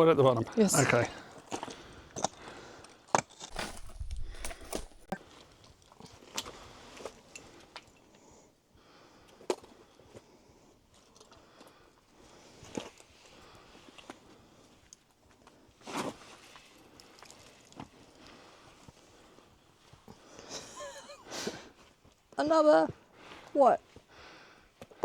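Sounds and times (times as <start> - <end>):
boots scrambling on rock: 3.4 - 5.2.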